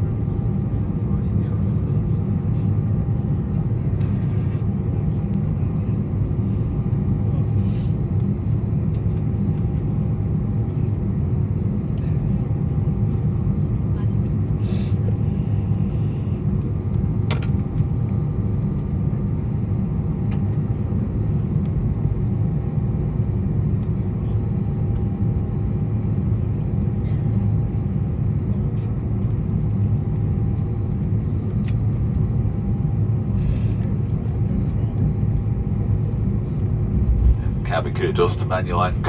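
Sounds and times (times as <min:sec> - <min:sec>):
aircraft cabin low rumble: 0:00.0 - 0:39.0
faint steady hum: 0:36.0 - 0:39.0.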